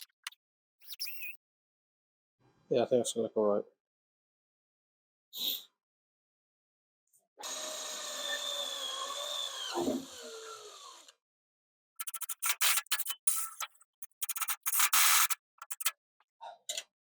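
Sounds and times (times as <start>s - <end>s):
power drill drilling: 7.4s - 11.1s
rapid clicks: 12.0s - 16.0s.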